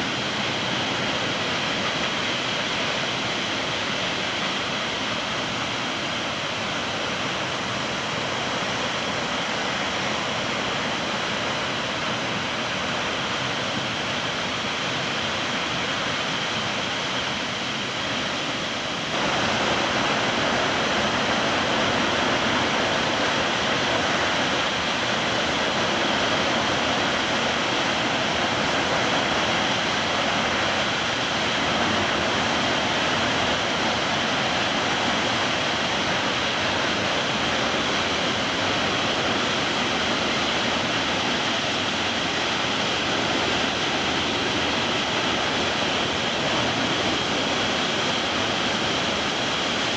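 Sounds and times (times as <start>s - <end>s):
water rushing from dam outflow: 0.0s - 49.9s.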